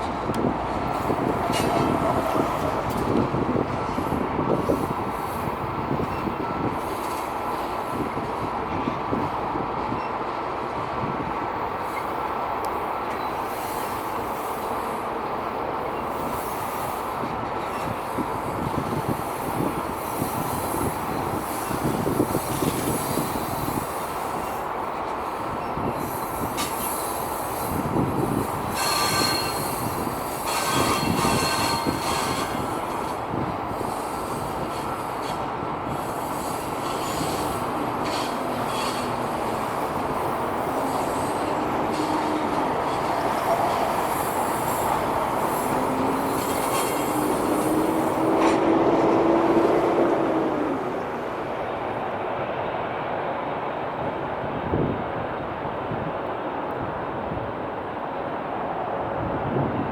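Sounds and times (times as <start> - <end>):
high metallic squeal: 28.7 - 33.0, 36.1 - 39.6, 40.5 - 48.3.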